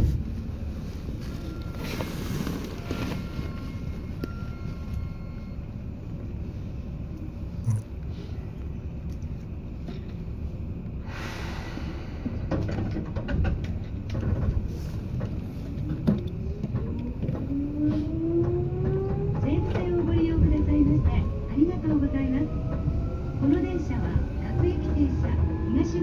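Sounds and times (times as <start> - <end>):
train wheels rumbling: 8.5 - 26.0.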